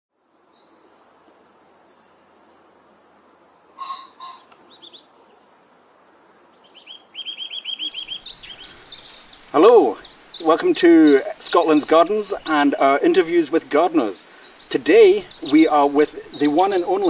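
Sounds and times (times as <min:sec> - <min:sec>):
faint steady hiss: 0:00.1 - 0:17.0
songbirds singing and calling: 0:03.8 - 0:05.4, 0:06.2 - 0:17.0.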